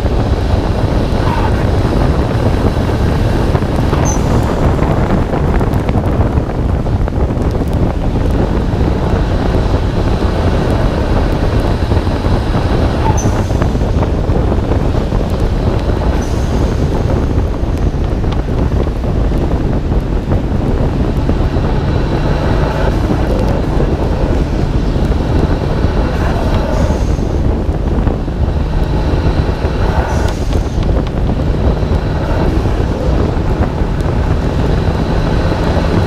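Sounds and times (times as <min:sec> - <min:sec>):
car engine running: 0:00.0 - 0:36.0
wet road noise: 0:00.0 - 0:36.0
wind rumble: 0:00.0 - 0:36.0.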